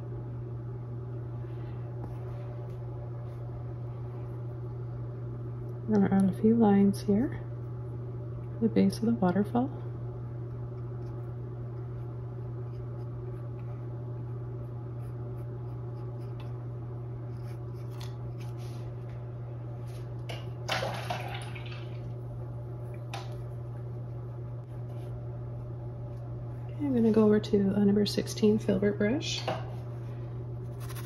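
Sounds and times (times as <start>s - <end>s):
steady low hum: 0.0s - 31.0s
paintbrush strokes on canvas: 14.9s - 19.1s, 23.5s - 25.7s, 30.6s - 31.0s.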